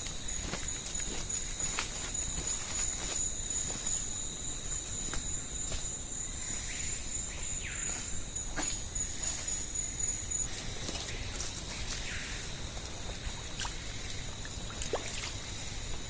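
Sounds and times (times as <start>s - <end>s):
insects droning chorus: 0.0s - 16.0s.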